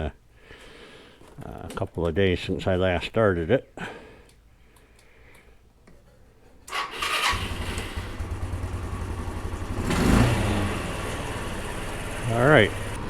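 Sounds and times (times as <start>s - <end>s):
electric starter cranking: 6.7s - 13.0s
scooter engine starting and idling: 6.7s - 13.0s.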